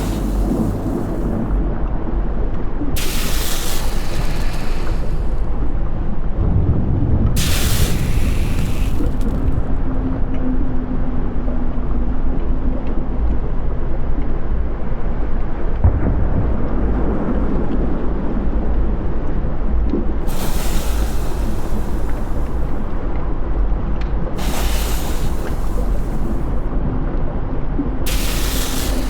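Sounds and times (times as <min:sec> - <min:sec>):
loud rushing hiss: 0:00.0 - 0:01.6, 0:03.0 - 0:05.6, 0:07.4 - 0:09.7, 0:20.3 - 0:23.0, 0:24.4 - 0:26.7, 0:28.1 - 0:29.0
deep volcanic eruption rumble: 0:00.0 - 0:02.1, 0:03.0 - 0:10.2, 0:15.8 - 0:23.7, 0:24.4 - 0:27.1, 0:27.9 - 0:29.0.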